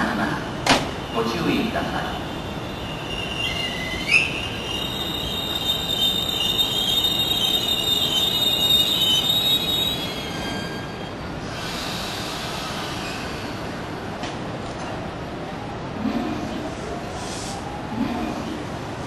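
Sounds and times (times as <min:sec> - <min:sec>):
electric train whine: 0:00.0 - 0:18.0
train rolling rumble: 0:00.0 - 0:19.0
high-pitched squeals: 0:02.3 - 0:11.8.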